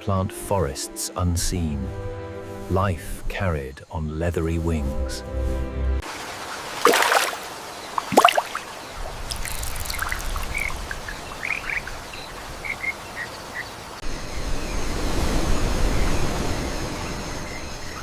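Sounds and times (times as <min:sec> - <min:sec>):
steady forest hiss: 0:00.0 - 0:18.0
high chirps of small animals: 0:08.7 - 0:13.7.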